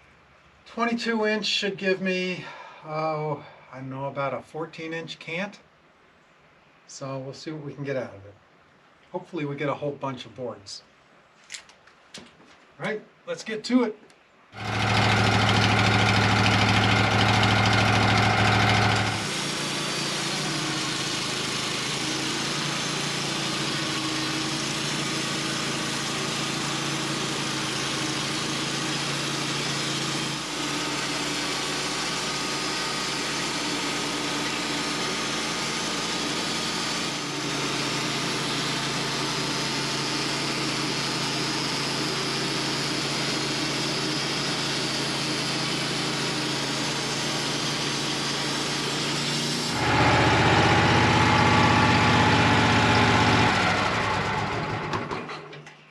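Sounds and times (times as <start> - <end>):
band saw cutting log: 14.6 - 55.4.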